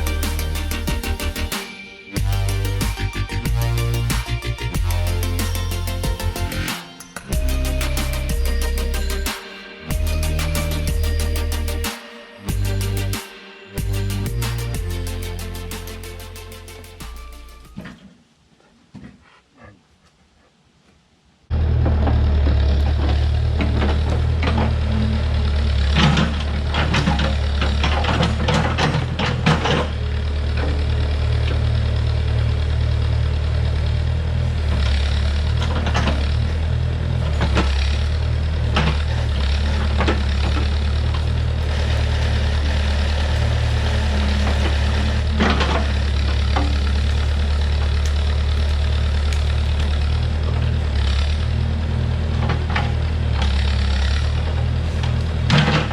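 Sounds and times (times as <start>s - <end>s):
heavy equipment engine idling: 21.5s - 55.9s.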